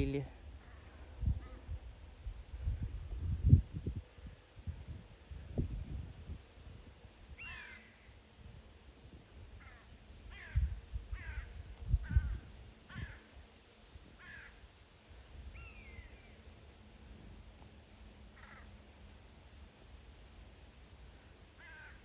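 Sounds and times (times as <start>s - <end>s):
crows cawing: 7.4s - 7.9s, 9.6s - 10.6s, 11.2s - 13.3s, 14.2s - 14.6s, 18.4s - 18.7s, 21.6s - 22.0s.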